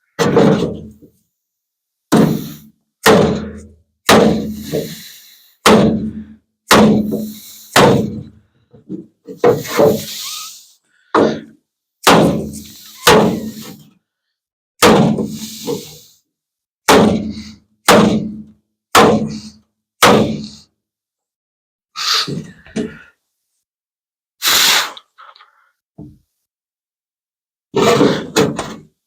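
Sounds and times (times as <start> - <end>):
hammer striking sheet steel: 6.7 - 8.2, 12.0 - 13.8.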